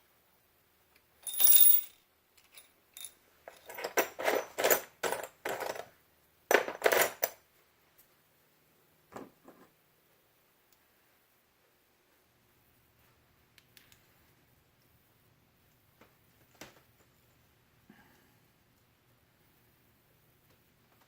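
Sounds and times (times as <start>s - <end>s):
metal washers clinking in a tray: 1.2s - 5.8s.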